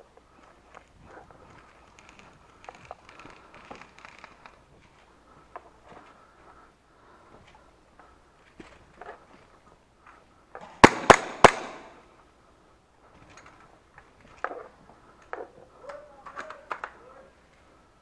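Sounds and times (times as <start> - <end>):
sharp echoing cracks: 10.6 - 12.1.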